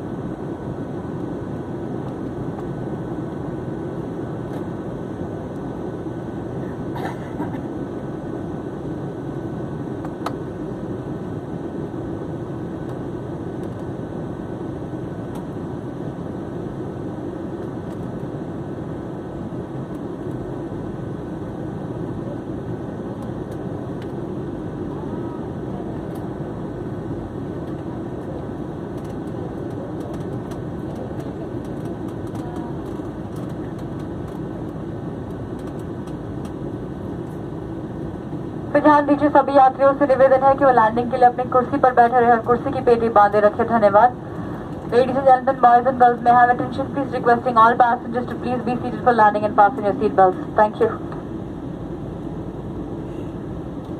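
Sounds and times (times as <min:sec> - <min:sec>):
jet engines rumbling in cabin: 0:00.0 - 0:53.9.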